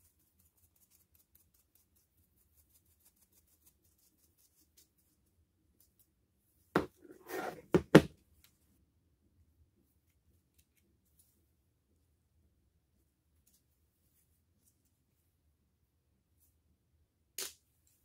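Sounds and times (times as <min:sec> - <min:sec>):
short scrape: 0:07.0 - 0:07.8.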